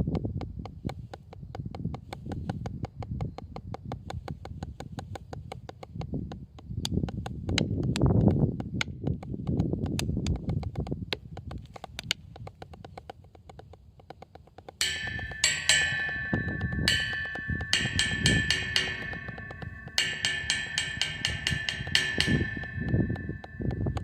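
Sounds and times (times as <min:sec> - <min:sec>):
light percussion tapping: 0:00.1 - 0:24.0
ringing pitched percussion strikes: 0:14.8 - 0:24.0.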